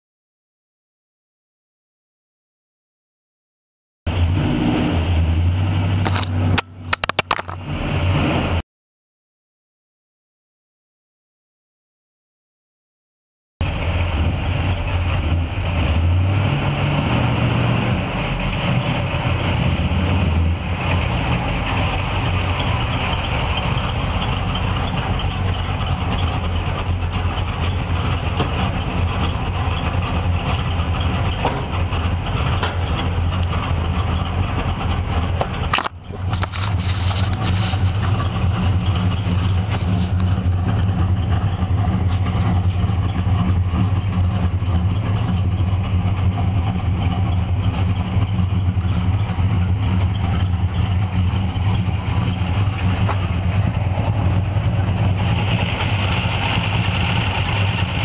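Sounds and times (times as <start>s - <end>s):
car engine idling with deep rumble: 13.6s - 58.0s.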